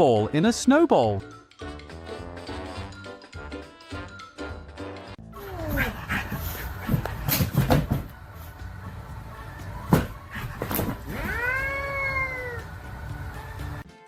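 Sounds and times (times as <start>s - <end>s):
cat meowing long: 11.1s - 12.7s.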